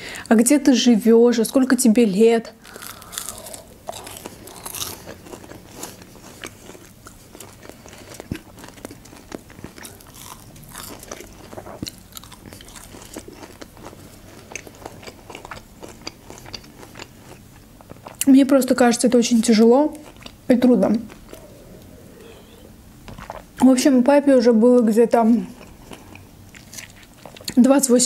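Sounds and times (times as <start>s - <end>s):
chewing crunchy fried food: 2.6s - 18.3s, 19.3s - 22.0s, 25.3s - 27.7s.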